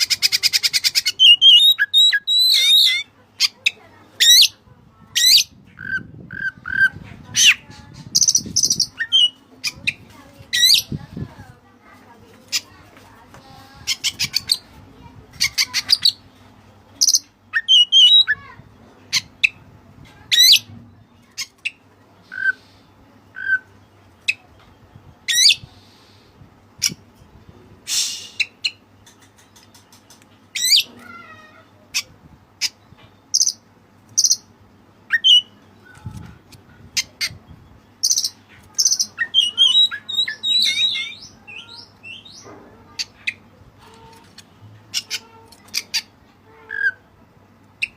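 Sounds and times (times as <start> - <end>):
magpie-robin singing whistles: 17.6 - 18.3, 39.2 - 42.3.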